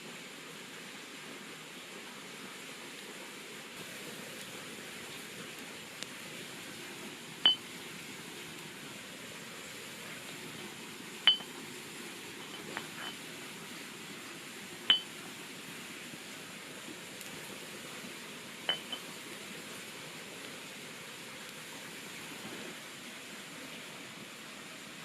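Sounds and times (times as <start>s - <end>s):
steady hiss: 0.0s - 25.0s
metal or glass objects clinking: 11.3s - 11.5s, 18.7s - 19.0s.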